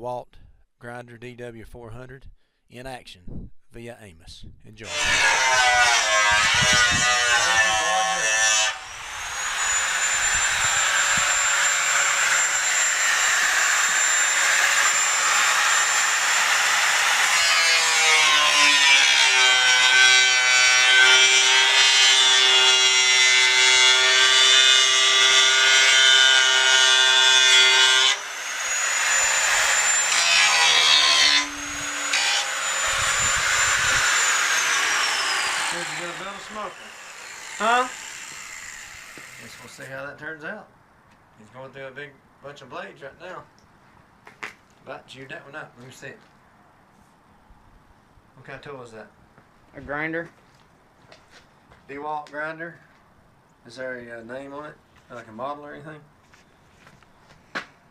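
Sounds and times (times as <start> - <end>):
angle grinder cutting steel: 4.8 - 39.9.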